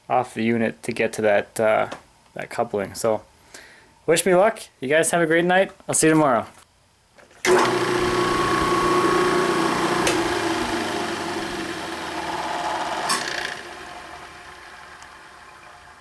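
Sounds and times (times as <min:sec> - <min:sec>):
machine motor humming: 0:07.5 - 0:16.0
sharp clicks: 0:09.9 - 0:10.7, 0:13.0 - 0:13.6.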